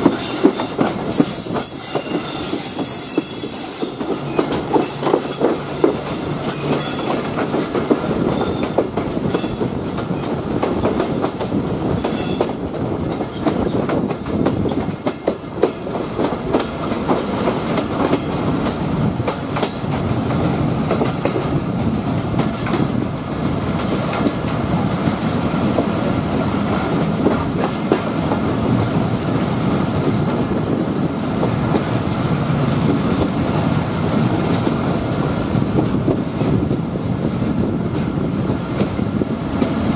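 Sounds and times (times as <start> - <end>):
wheels clacking over rail joints: 0.0 - 29.0
train running noise: 0.0 - 39.9
high wheel squeals: 0.1 - 5.1, 6.4 - 7.2.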